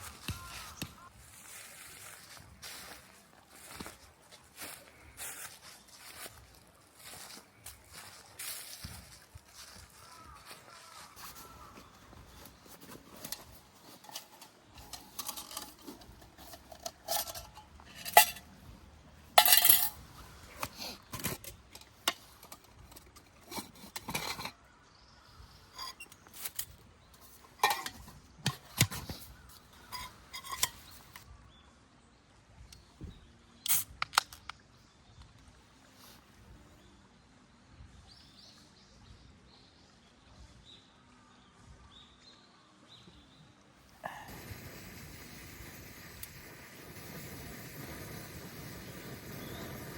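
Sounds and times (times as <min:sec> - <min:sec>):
small metal objects clinking: 0:13.3 - 0:18.6, 0:19.4 - 0:20.0.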